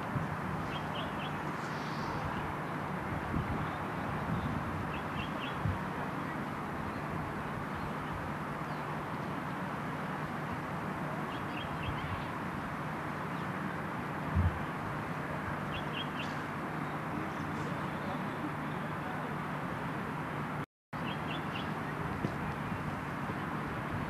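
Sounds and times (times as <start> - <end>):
outdoor hiss: 0.0 - 24.0
bird chirping: 0.6 - 2.8, 3.6 - 5.7, 11.3 - 12.4, 15.6 - 18.2, 21.0 - 22.0
dull low thump: 14.3 - 14.6.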